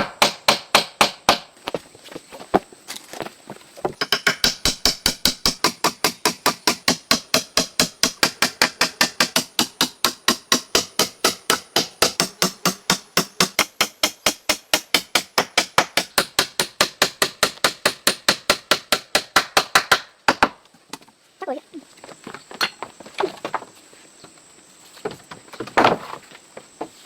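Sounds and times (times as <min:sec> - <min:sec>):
scattered knocks: 0:03.9 - 0:14.2
rapid striking blows: 0:04.0 - 0:20.4.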